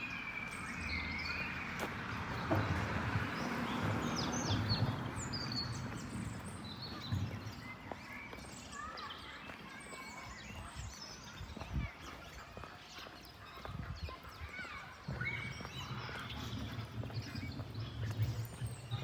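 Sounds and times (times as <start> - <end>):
small birds chirping and whistling: 0.0 - 19.0.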